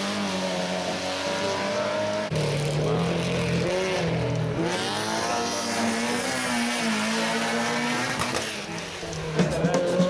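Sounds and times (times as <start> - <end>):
racing car engine revving: 0.0 - 10.0.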